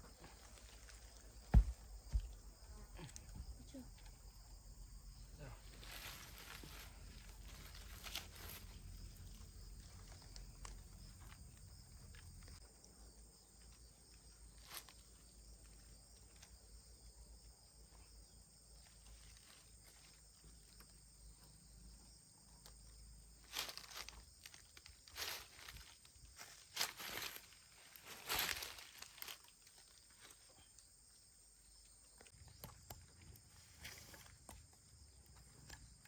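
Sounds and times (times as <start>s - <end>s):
sharp knocks: 1.5s - 2.4s.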